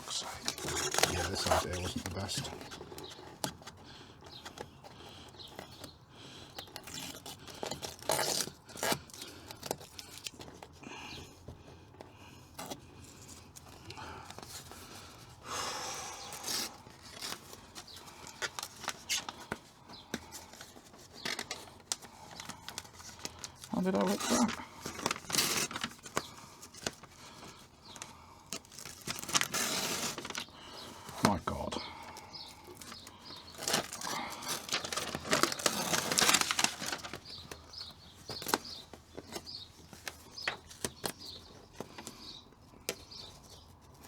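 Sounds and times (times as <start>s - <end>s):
insulation sheet rustling: 0.0s - 2.8s, 33.4s - 39.4s.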